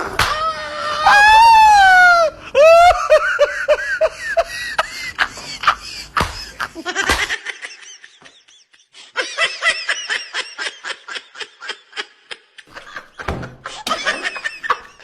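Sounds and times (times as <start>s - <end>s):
person snickering and giggling: 2.5s - 15.0s.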